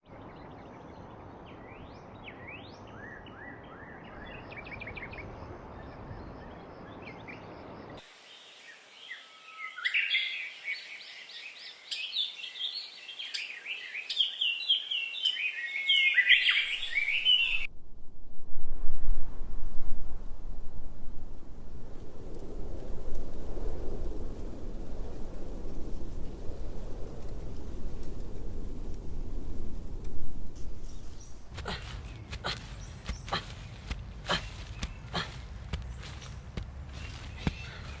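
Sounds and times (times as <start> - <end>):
birds chirping: 30.6 - 38.0.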